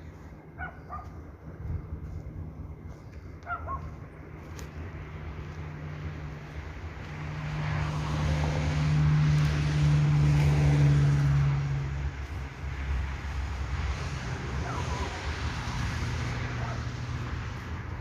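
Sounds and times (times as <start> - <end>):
steady low hum: 0.0 - 10.3
motor vehicle passing: 1.8 - 18.0.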